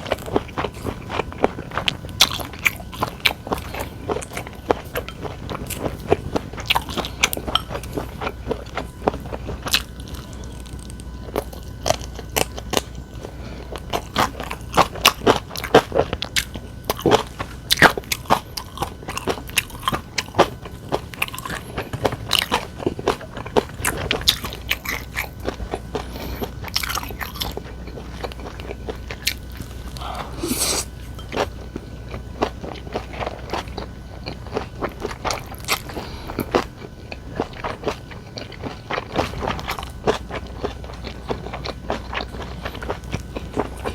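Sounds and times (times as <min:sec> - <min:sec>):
person chewing food: 0:00.0 - 0:43.9.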